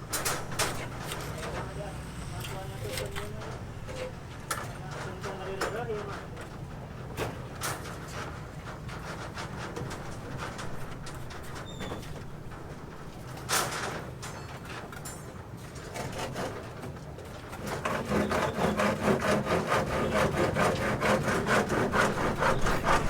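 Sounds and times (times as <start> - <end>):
hand saw sawing: 15.9 - 16.8, 17.5 - 23.0.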